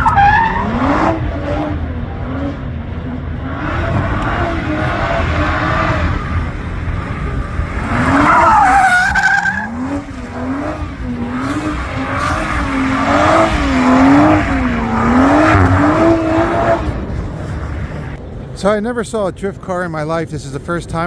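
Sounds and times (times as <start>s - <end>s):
car engine revving: 0.0s - 18.8s
tyres skidding and squealing: 0.0s - 21.0s.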